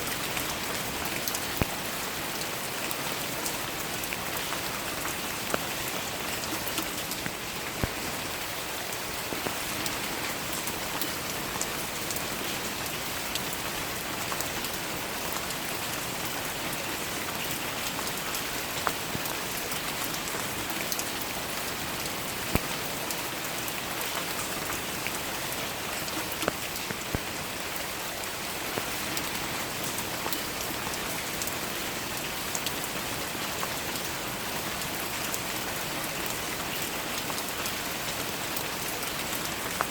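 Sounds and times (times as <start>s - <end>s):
rain falling on petals: 0.0s - 39.9s.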